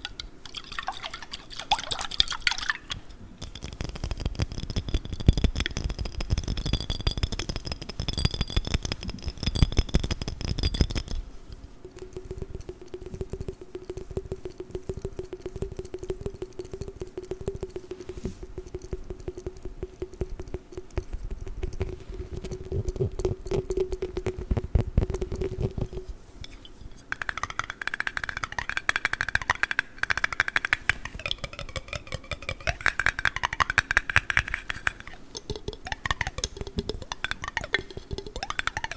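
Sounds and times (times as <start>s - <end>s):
fingertips tapping glass jar: 0.0s - 38.9s
ringing glass tones: 4.6s - 18.2s, 30.2s - 38.9s.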